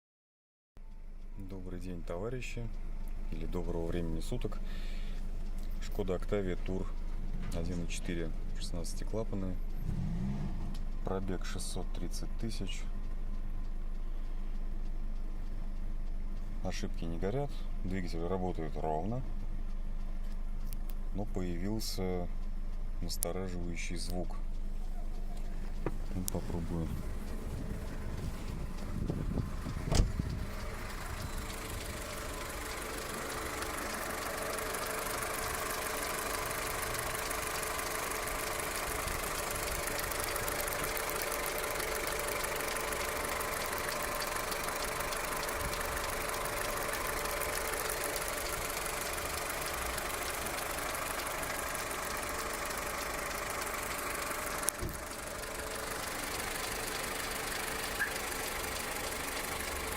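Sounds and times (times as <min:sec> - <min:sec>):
car engine idling with knock: 0:00.8 - 0:59.9
sharp thump: 0:29.1 - 0:30.4.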